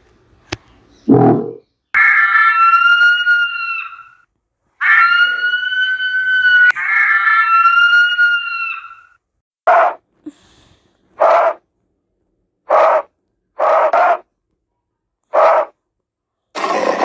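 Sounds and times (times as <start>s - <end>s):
animal calls: 11.2s - 11.6s, 12.7s - 14.2s, 15.3s - 15.7s.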